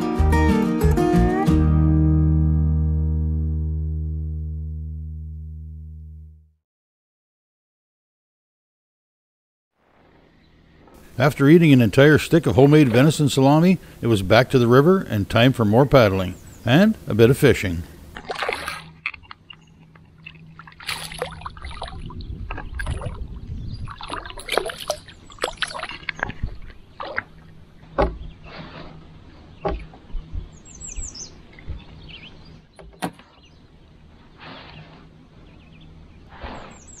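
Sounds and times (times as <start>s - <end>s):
birds calling: 10.2s - 37.0s
small water splashes: 18.1s - 28.1s
paddle knocking against hull: 25.4s - 28.4s, 29.6s - 30.1s.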